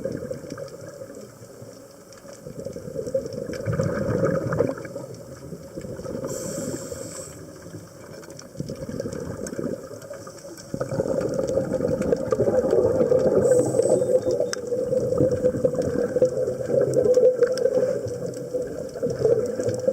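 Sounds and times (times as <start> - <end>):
exhaled air bubbling: 0.0 - 19.9
regulator inhale hiss: 6.2 - 7.8, 13.3 - 14.3.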